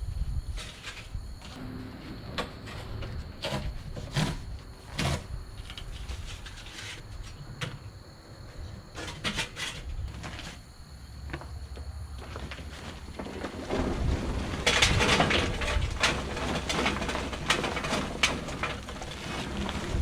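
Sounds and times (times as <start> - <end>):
wind rumbling on microphone: 0.0 - 7.4, 11.5 - 20.0
knocks and clunks of grill: 12.2 - 20.0.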